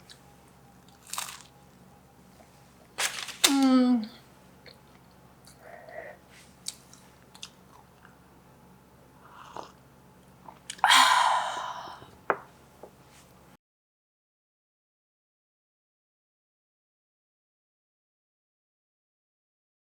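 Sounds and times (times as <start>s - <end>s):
crunchy bite: 0.9s - 1.5s
person chewing: 4.7s - 8.2s, 9.2s - 10.9s.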